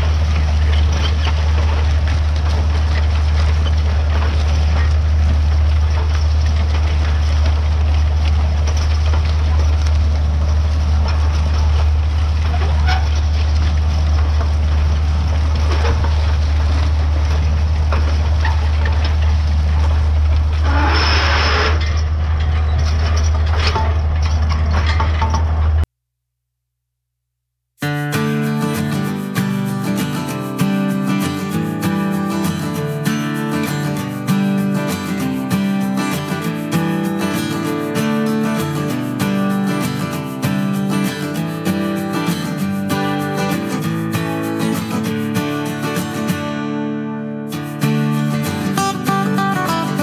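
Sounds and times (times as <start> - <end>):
tractor diesel engine droning: 0.0 - 25.8.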